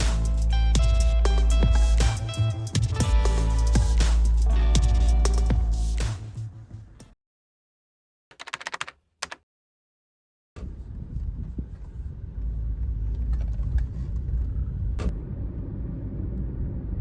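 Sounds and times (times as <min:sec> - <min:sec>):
music: 0:00.0 - 0:07.2
car road noise: 0:10.6 - 0:17.0.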